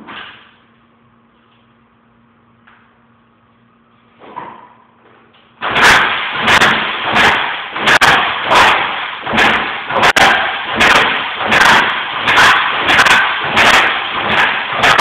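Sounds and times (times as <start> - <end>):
dirt bike engine running: 5.6 - 15.0.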